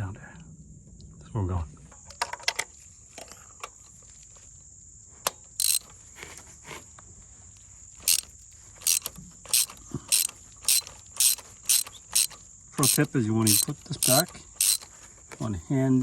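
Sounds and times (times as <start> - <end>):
socket ratchet clicking: 5.3 - 5.9, 8.0 - 15.0.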